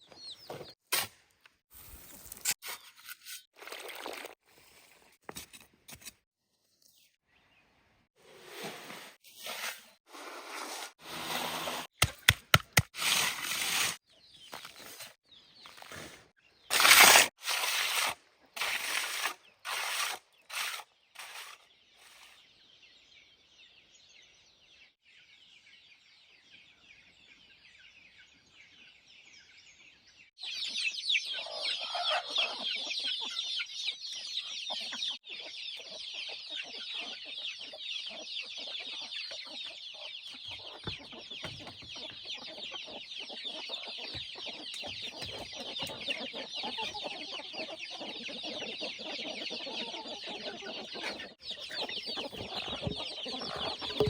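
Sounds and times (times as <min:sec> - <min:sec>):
chickens clucking: 0:30.6 - 0:54.0.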